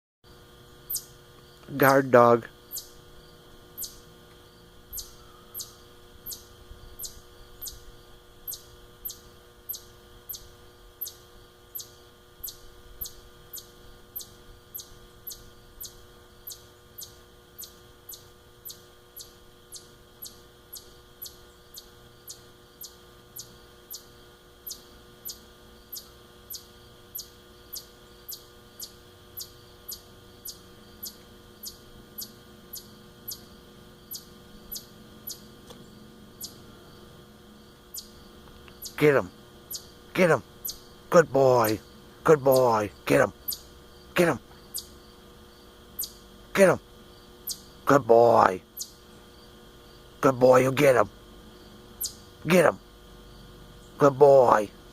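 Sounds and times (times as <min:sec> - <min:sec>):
low steady hum: 0:00.3 - 0:54.9
small animal chirping: 0:00.9 - 0:01.2, 0:02.7 - 0:03.0, 0:03.8 - 0:04.0, 0:04.9 - 0:33.5, 0:34.1 - 0:35.5, 0:36.4 - 0:36.7, 0:37.9 - 0:45.0, 0:46.0 - 0:46.2, 0:47.4 - 0:49.0, 0:52.0 - 0:52.3.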